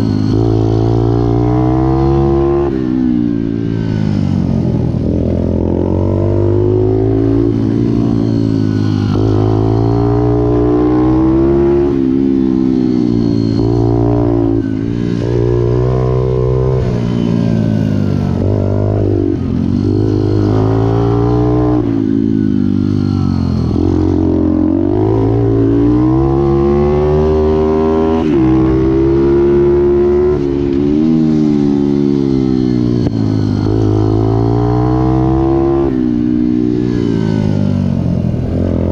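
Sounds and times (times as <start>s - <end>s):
small motorcycle engine revving: 0.0s - 38.9s.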